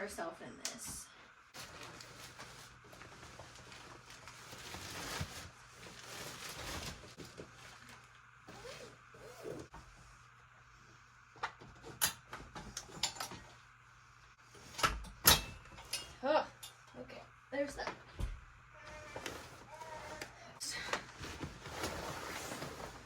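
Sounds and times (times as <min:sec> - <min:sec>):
bassinet rustling and handling: 0:01.6 - 0:10.0, 0:21.0 - 0:23.0.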